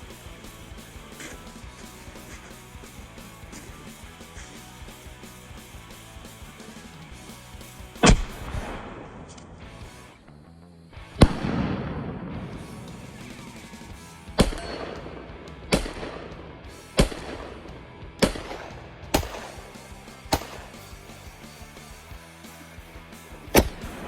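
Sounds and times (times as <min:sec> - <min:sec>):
pistol shots with echo: 0:14.4 - 0:16.4, 0:17.0 - 0:21.1.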